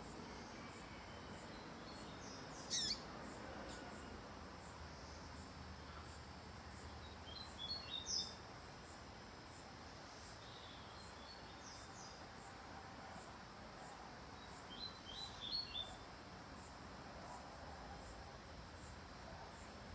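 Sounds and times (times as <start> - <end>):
bird chirping: 0.5 - 3.1, 7.0 - 8.4, 14.4 - 16.0.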